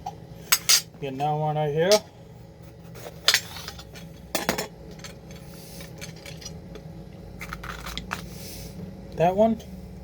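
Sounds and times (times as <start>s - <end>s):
metal spoon scraping a pepper: 7.4s - 8.4s.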